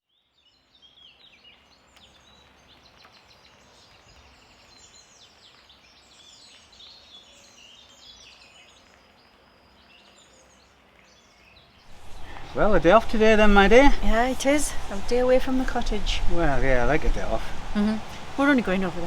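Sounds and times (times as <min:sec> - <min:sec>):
songbirds chirping and trilling: 0:00.2 - 0:19.0
faint low rumble: 0:11.9 - 0:19.0.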